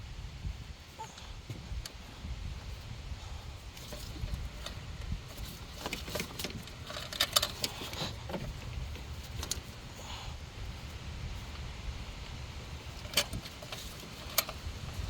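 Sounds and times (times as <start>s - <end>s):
metal tools clinking and rattling: 3.8s - 8.5s.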